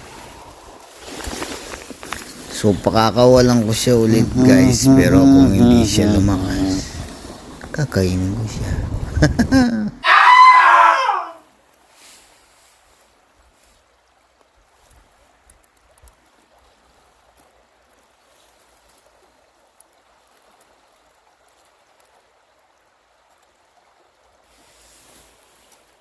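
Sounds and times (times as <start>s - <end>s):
flowing stream water: 0.0s - 9.7s, 11.4s - 26.0s
small clicks: 14.9s - 16.6s.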